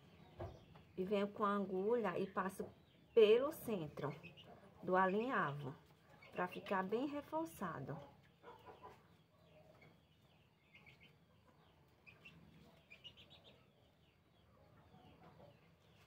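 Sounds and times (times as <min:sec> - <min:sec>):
faint bird chirps: 0:08.4 - 0:16.0.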